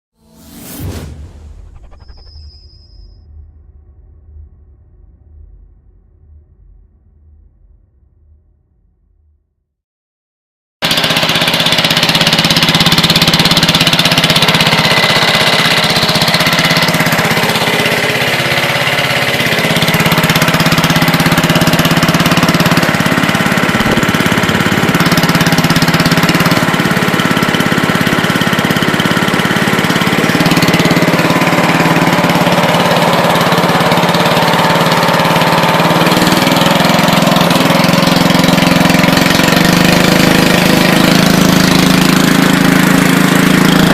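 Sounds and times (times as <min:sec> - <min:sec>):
lawn mower engine running: 0:10.8 - 0:43.9.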